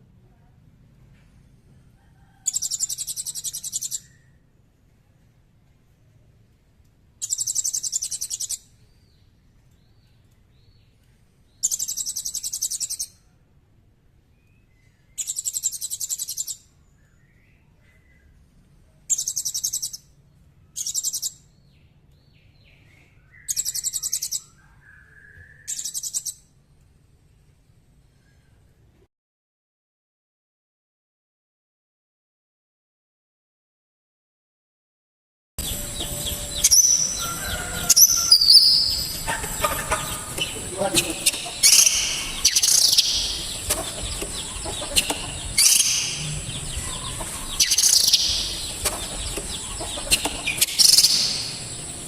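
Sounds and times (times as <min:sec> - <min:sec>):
soft bird chirps: 0:07.2 - 0:13.2, 0:14.4 - 0:18.4, 0:20.7 - 0:26.4, 0:35.6 - 0:52.0
bird singing high trills: 0:35.6 - 0:52.0.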